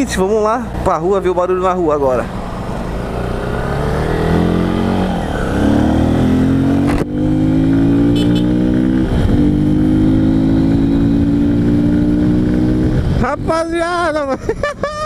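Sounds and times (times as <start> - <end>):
motorcycle engine accelerating: 2.3 - 13.6.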